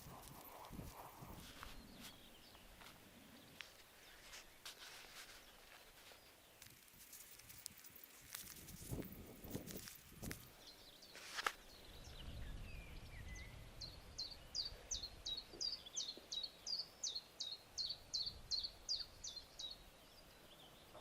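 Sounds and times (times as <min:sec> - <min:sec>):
songbird singing: 0:00.0 - 0:21.0.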